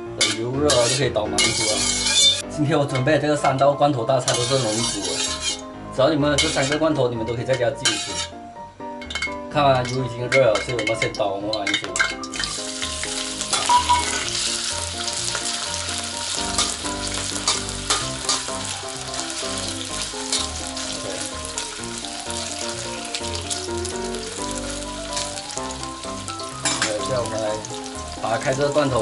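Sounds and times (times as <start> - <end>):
potatoes sizzling in hot oil: 0.2 - 2.4, 4.2 - 5.6, 6.4 - 6.9, 11.6 - 29.0
metal spatula scraping a pan: 0.2 - 8.4, 9.0 - 23.6, 25.2 - 27.3.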